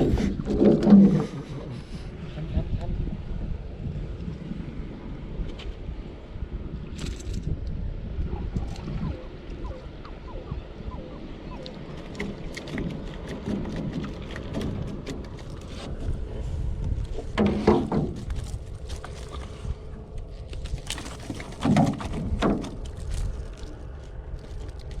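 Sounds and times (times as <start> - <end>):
wind rumble on microphone: 0.0 - 25.0
water splashing against boat: 9.0 - 25.0.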